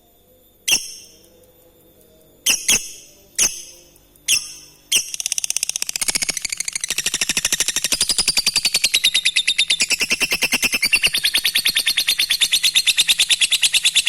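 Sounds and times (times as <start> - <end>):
lovebird calling: 0.7 - 1.1, 2.5 - 6.8
lovebird chattering trill: 0.7 - 1.2, 2.5 - 14.0.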